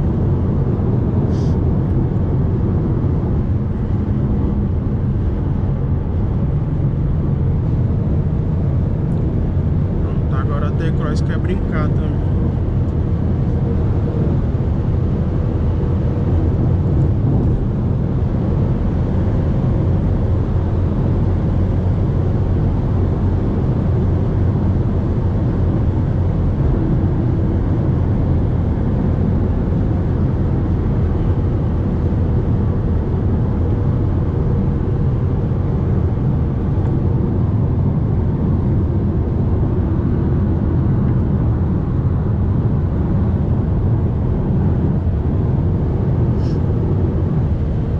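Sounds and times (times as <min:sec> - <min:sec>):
engine drone: 0:00.0 - 0:47.9
wind noise: 0:00.0 - 0:47.9.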